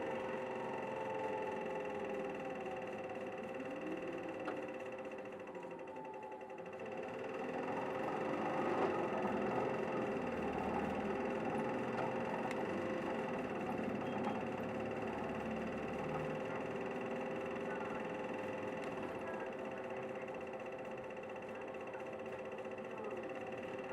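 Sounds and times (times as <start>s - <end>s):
bus diesel engine running: 0.0s - 23.9s
constant engine whine: 0.0s - 23.9s.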